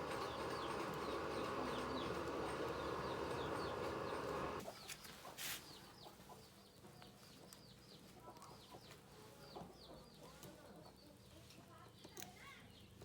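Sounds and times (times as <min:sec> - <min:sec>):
steady machine noise: 0:00.0 - 0:04.6
small birds chirping: 0:00.0 - 0:10.3.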